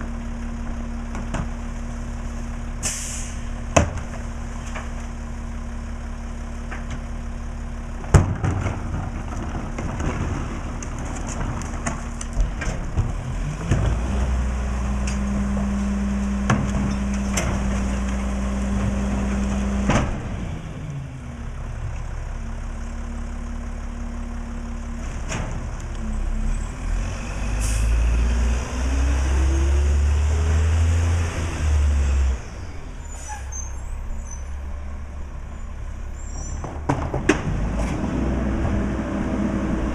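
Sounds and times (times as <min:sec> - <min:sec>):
air brake hiss: 0:02.8 - 0:03.5.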